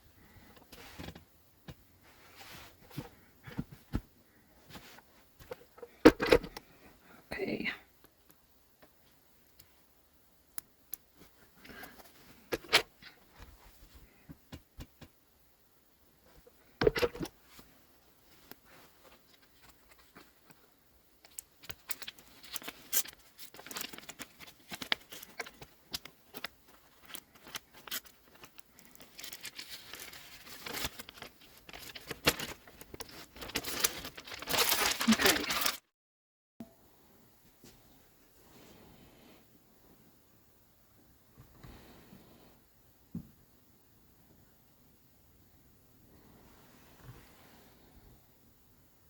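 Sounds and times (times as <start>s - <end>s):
fabric rustling and scraping: 1.8s - 6.1s.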